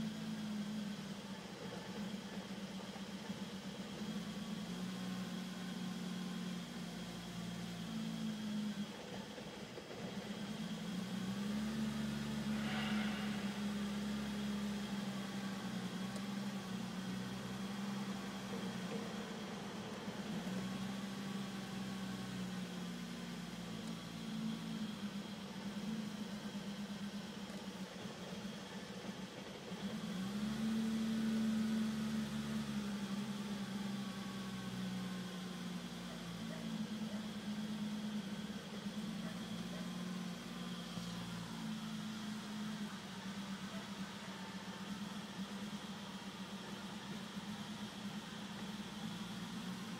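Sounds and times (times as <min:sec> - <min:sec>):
car engine idling: 0:08.6 - 0:30.1
car engine idling roughly: 0:12.0 - 0:15.0.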